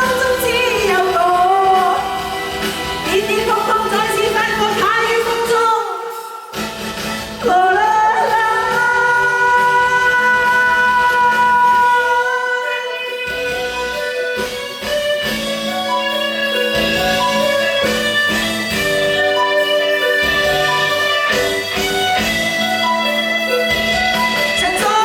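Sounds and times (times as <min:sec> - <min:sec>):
pop backing music: 0:00.0 - 0:25.0
person singing: 0:07.4 - 0:14.4.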